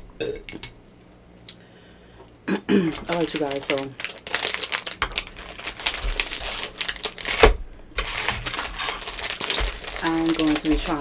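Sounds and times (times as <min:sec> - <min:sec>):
plastic packaging crinkling: 0:02.8 - 0:11.0.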